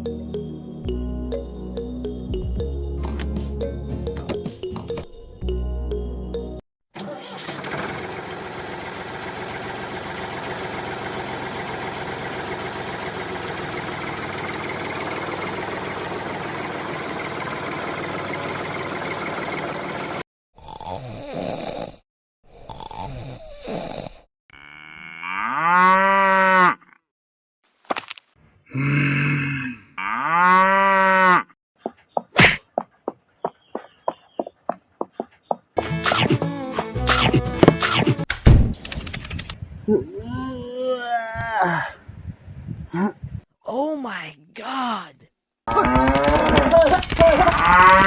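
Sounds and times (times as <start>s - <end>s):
cow mooing: 24.6s - 26.9s, 30.0s - 31.5s
small motor running: 45.8s - 48.0s.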